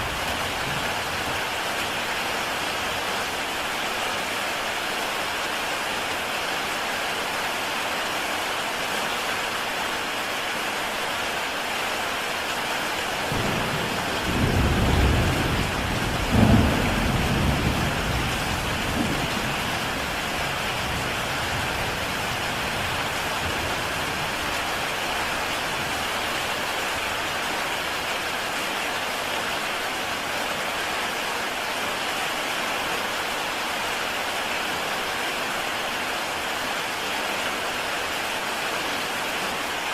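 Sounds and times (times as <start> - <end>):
heavy rain on a tile roof: 0.0 - 39.9
thunder rumble: 13.4 - 22.2.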